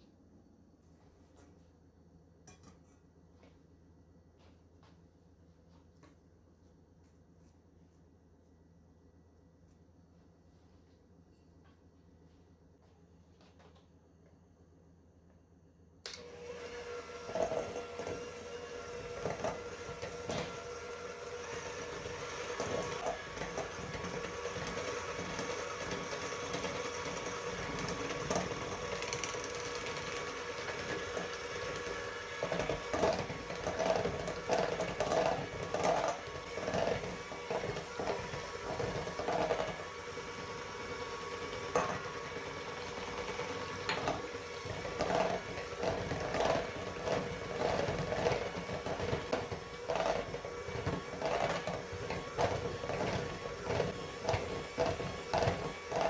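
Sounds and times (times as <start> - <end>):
electric hand mixer running: 16.2 - 56.0.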